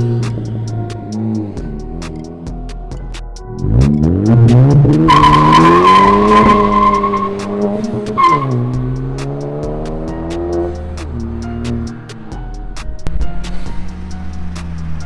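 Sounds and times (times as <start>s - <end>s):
car engine accelerating hard: 0.0s - 12.6s
high steady squeal: 3.9s - 10.0s.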